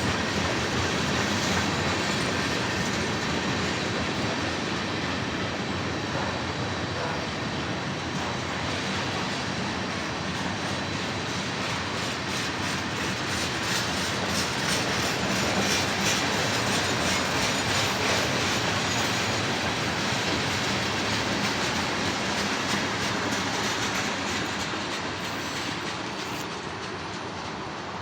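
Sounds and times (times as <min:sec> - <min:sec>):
freight train cars rolling past: 0:00.0 - 0:28.0
wheels clicking over rail joints: 0:10.0 - 0:28.0.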